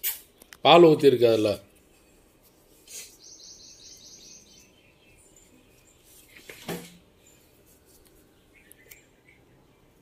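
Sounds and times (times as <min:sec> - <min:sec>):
bird chirping trill: 0:02.9 - 0:06.5, 0:08.3 - 0:09.9.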